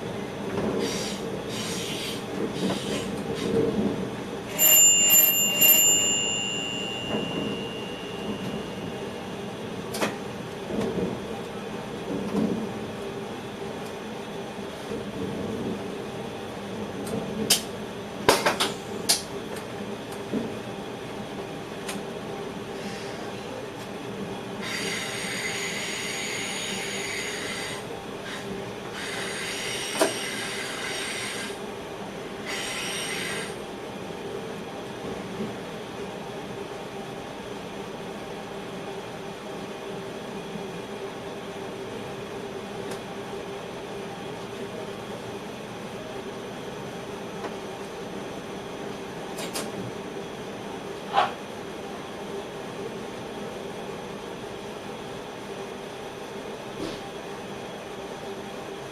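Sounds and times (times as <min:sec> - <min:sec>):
train running hum: 0:00.0 - 0:58.9.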